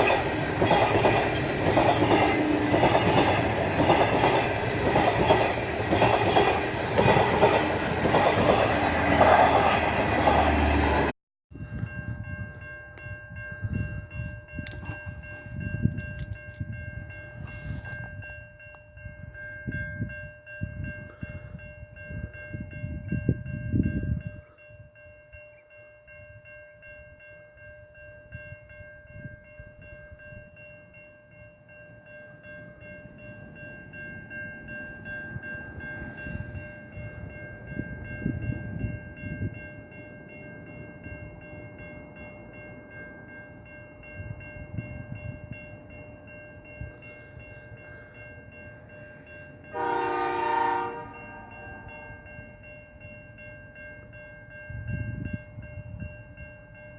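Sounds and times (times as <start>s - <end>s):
train rumbling: 0.0s - 19.4s, 31.6s - 56.9s
train horn blast: 49.7s - 52.1s.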